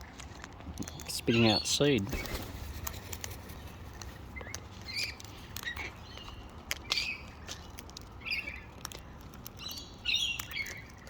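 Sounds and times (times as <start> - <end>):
parrots chirping softly: 0.0 - 11.0.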